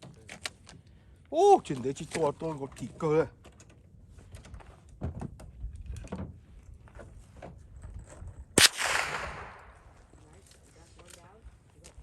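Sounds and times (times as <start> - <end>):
gunshot with echo: 8.6 - 10.1.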